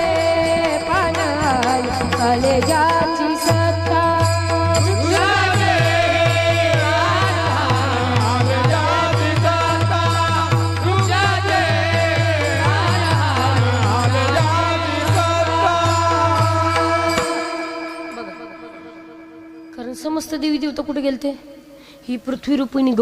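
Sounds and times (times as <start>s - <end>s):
drum beat: 0.0s - 17.6s
harmonium held tones: 0.0s - 22.4s
person singing devotional song: 0.0s - 22.7s.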